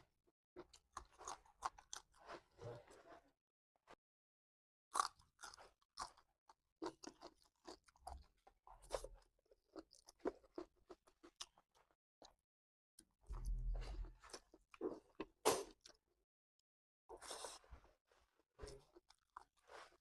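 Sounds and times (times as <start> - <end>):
person chewing food: 0.6 - 2.6, 4.9 - 11.9, 18.7 - 20.0.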